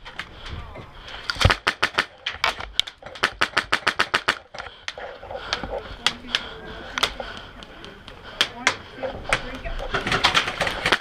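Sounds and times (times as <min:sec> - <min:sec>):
airsoft gun shots: 0:01.4 - 0:02.1, 0:03.2 - 0:04.4.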